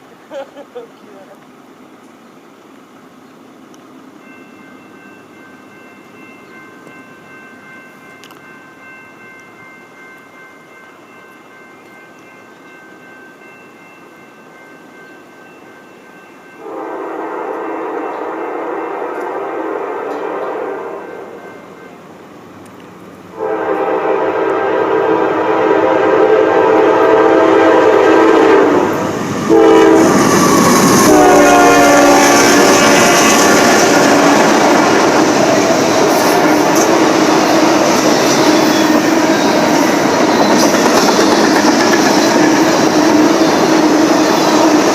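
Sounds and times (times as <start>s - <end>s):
freight train rumbling: 0.0s - 44.9s
locomotive horn blowing: 16.6s - 21.4s, 23.3s - 35.2s.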